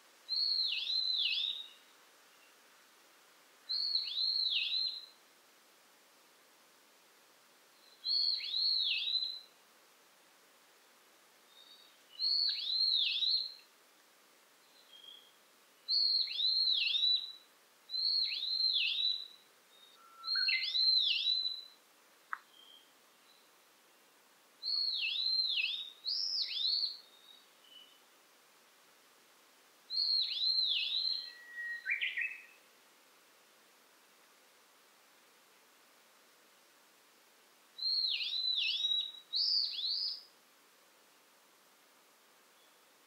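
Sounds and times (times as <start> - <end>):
songbird singing: 0.0 - 3.0, 3.6 - 5.2, 7.4 - 9.7, 10.8 - 28.2, 29.8 - 32.8, 37.4 - 40.4, 42.3 - 43.0
faint click: 22.3 - 22.6.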